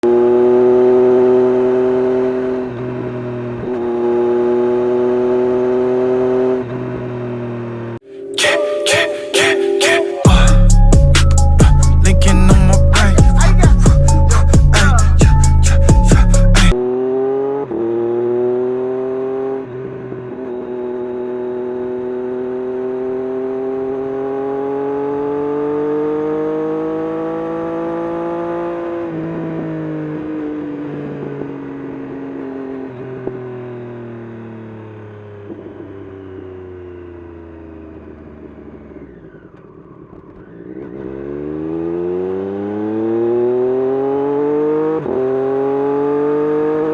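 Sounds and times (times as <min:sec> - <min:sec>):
motorcycle engine running loud: 0:12.3 - 0:46.9.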